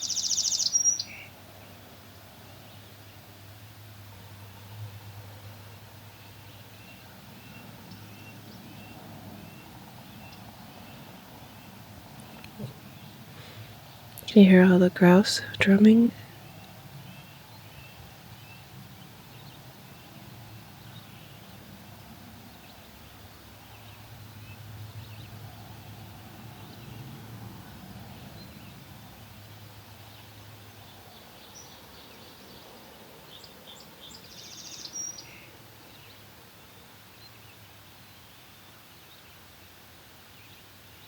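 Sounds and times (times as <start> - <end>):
high bird call: 0.0 - 1.3
songbird chirps: 0.0 - 41.0.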